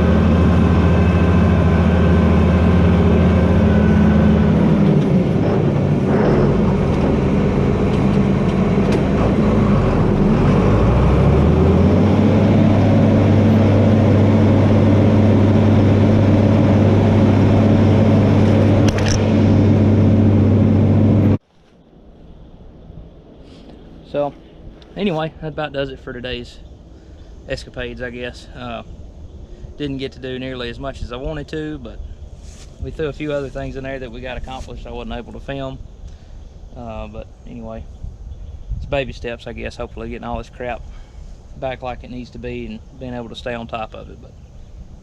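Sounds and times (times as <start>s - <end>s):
tractor diesel engine running: 0.0s - 21.4s.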